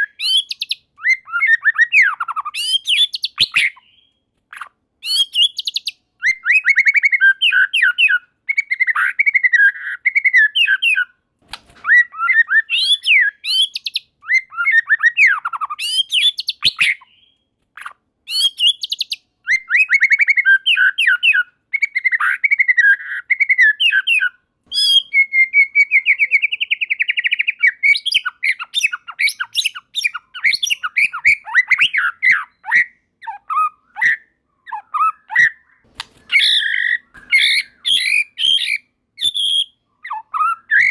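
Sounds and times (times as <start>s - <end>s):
bird singing: 0.0s - 11.1s, 11.8s - 40.9s.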